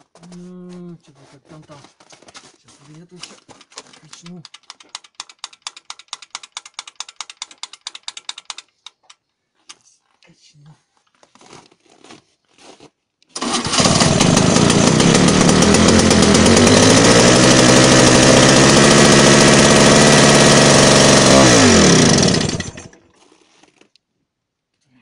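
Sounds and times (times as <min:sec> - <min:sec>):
small two-stroke engine running: 0:13.4 - 0:23.1.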